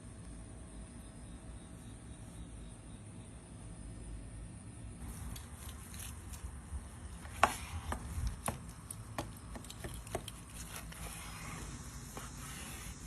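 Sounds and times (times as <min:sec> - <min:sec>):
food preparation clicks and knocks: 0:07.3 - 0:10.6.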